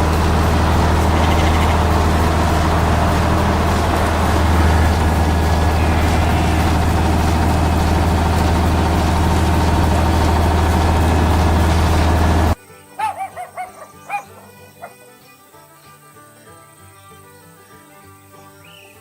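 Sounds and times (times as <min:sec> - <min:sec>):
heavy engine idling: 0:00.0 - 0:12.6.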